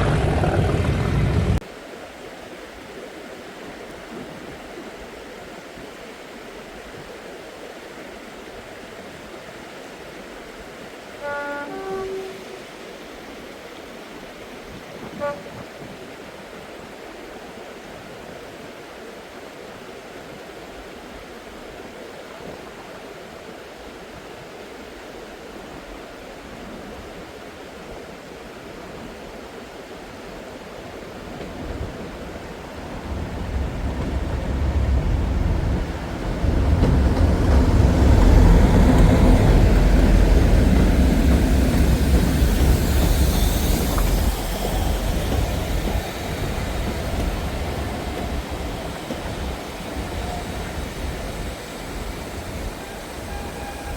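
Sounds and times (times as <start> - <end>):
steady hiss: 30.0 - 53.9
train rumbling past: 30.3 - 53.9.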